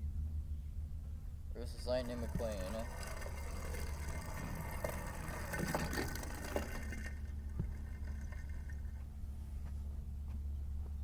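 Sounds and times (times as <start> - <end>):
steady low hum: 0.0 - 11.0
toy cars rolling down track: 2.1 - 7.3.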